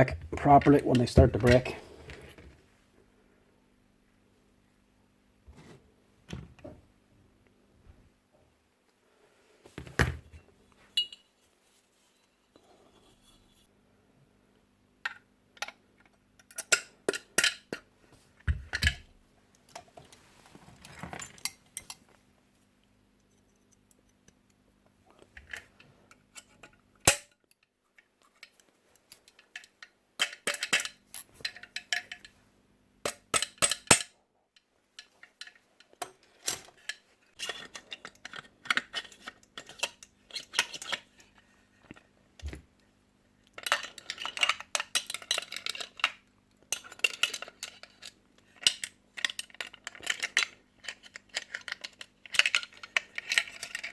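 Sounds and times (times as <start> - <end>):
metal tools clinking: 10.9 - 11.4.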